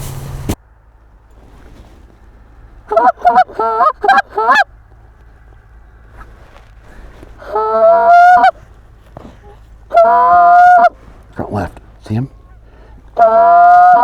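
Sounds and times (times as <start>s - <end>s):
geese honking: 0.0s - 0.6s, 2.9s - 4.6s, 7.4s - 8.7s, 9.4s - 14.0s.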